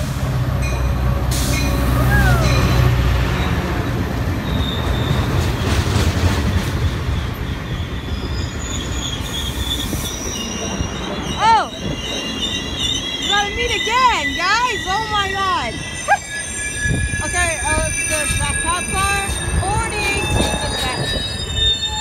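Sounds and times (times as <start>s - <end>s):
diesel locomotive rumble: 0.0s - 22.0s
train cars rushing past: 0.0s - 22.0s
wheel squeal: 4.4s - 22.0s.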